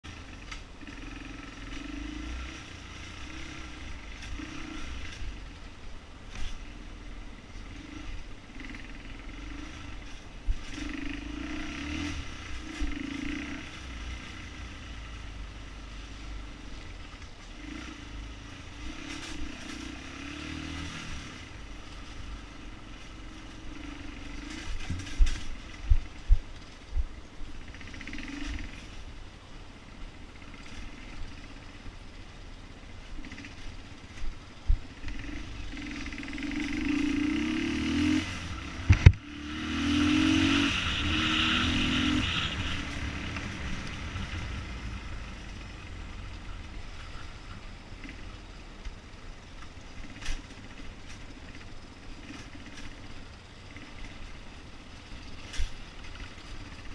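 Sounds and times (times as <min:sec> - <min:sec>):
motorcycle engine rumbling: 0:00.0 - 0:56.9.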